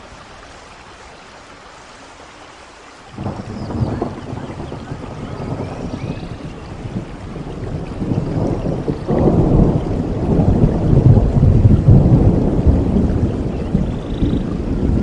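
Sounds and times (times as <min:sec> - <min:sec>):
steady rain: 0:00.0 - 0:15.0
thunder rumbling: 0:03.2 - 0:15.0.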